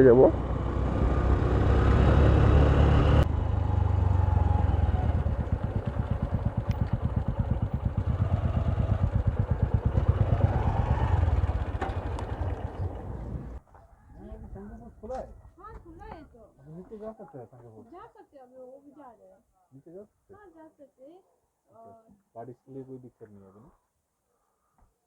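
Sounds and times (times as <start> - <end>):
motorcycle engine running: 0.0 - 13.6
wind and road rumble: 0.0 - 16.4.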